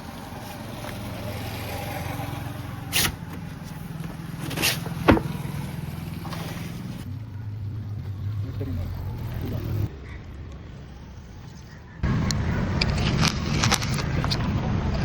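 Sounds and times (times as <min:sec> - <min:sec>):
motor humming: 0:00.0 - 0:09.9
short sharp hisses: 0:02.9 - 0:03.2.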